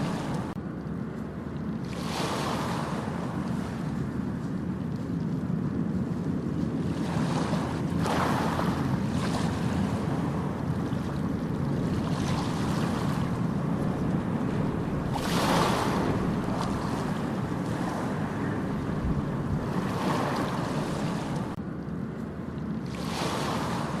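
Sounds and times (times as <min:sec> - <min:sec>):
ocean surf breaking: 0:00.0 - 0:00.6, 0:01.9 - 0:04.2, 0:06.8 - 0:21.6, 0:22.9 - 0:24.0
steady low rumble: 0:02.8 - 0:23.0.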